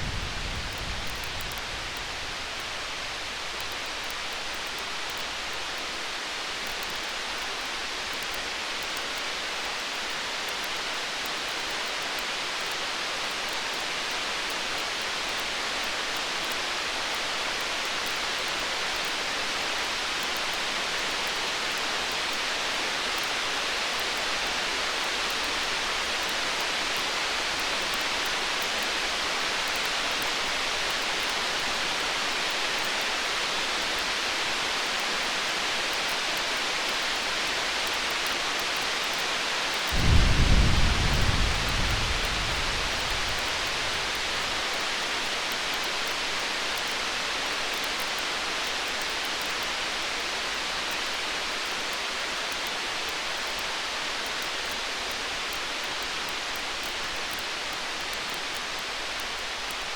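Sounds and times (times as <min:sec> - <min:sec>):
wood fire crackling: 0:39.1 - 0:46.9
rain hissing: 0:39.7 - 0:46.5.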